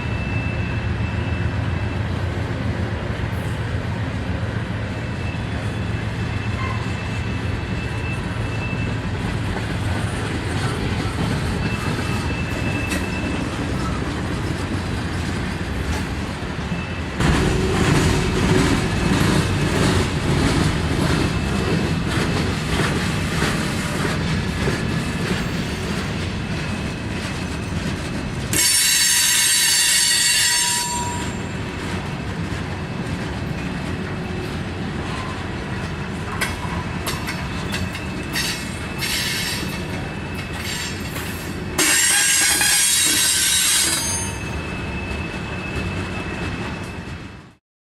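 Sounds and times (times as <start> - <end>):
shrill wheel squeal: 0.0 - 2.1, 4.9 - 9.2, 10.6 - 14.1, 16.6 - 17.6, 28.5 - 31.6, 36.6 - 47.6
freight train rumbling past: 0.0 - 47.6.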